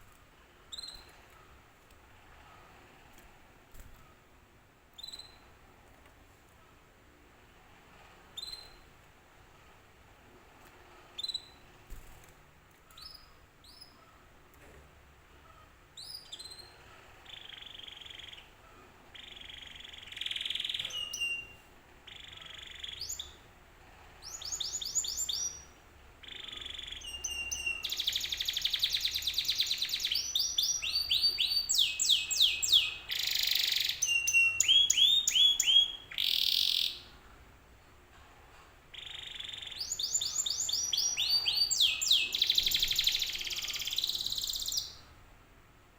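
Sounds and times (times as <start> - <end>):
canary singing: 0.7 - 1.2, 5.0 - 5.5, 8.4 - 8.8, 11.2 - 11.7, 15.5 - 23.5, 24.2 - 37.2, 38.9 - 45.1.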